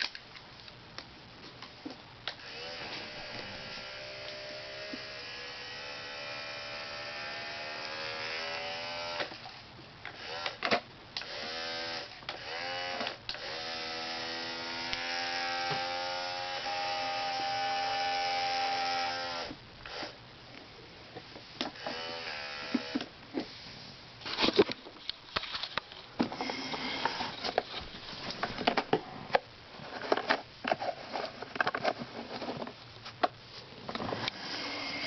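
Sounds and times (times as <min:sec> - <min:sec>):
toy truck motor whirring: 0:02.4 - 0:09.3, 0:10.2 - 0:10.6, 0:21.8 - 0:23.1, 0:26.4 - 0:27.6, 0:34.2 - 0:35.0.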